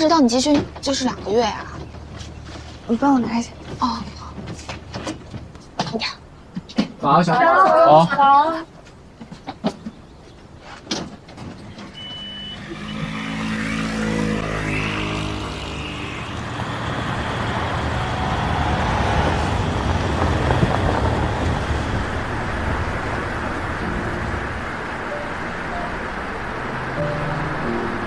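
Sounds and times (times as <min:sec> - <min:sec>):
road noise: 0:00.0 - 0:28.0
car engine: 0:11.6 - 0:28.0.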